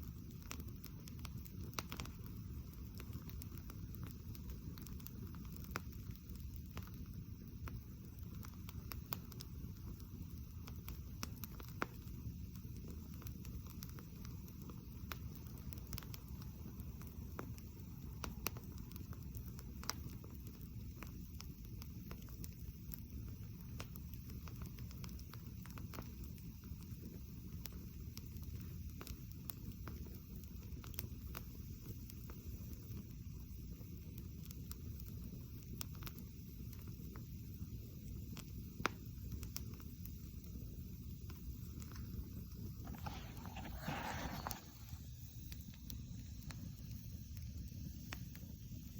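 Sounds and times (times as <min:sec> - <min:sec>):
campfire crackling and popping: 0:00.0 - 0:48.9.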